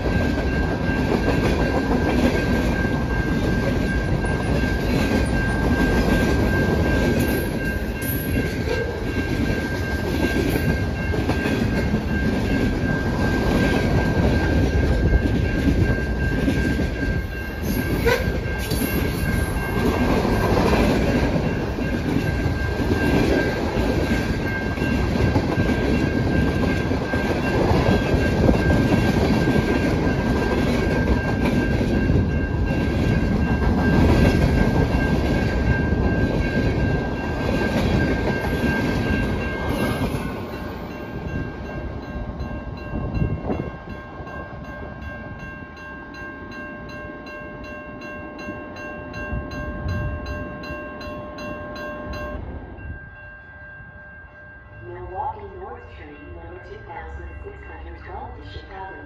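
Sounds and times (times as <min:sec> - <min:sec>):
train wheels clattering on rails: 0:00.0 - 0:45.4
high ringing tone: 0:00.0 - 0:59.0.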